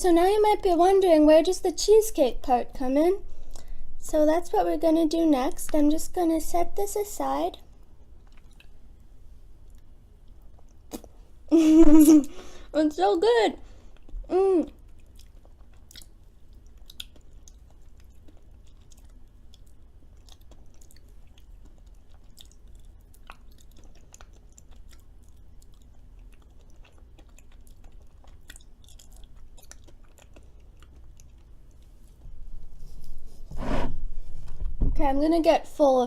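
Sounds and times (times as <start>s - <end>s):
low room hum: 0.0s - 36.0s
person chewing food: 7.7s - 11.3s, 13.7s - 33.4s
wet mouth clicks: 8.2s - 8.8s, 9.7s - 11.2s.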